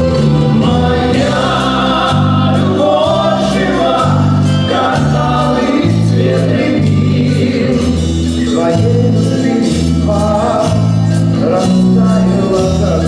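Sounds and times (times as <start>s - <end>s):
bass line: 0.0s - 13.0s
pop band playing: 0.0s - 13.0s
several voices singing together: 0.0s - 13.0s.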